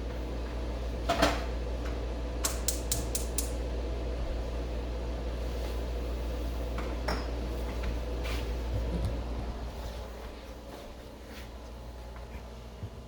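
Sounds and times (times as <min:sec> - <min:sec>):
steady low hum: 0:00.0 - 0:13.0
gas burner igniter clicking: 0:02.4 - 0:03.6.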